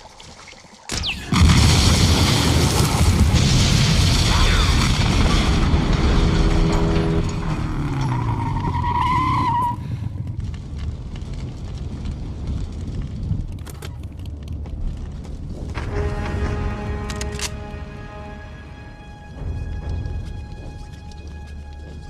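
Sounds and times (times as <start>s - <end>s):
tire squeal: 7.9s - 9.8s.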